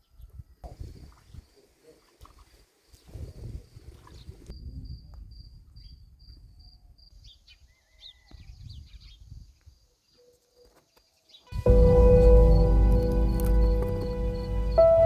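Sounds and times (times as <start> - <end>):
cricket chirping: 11.6 - 15.0
faint low rumbling: 11.6 - 15.0.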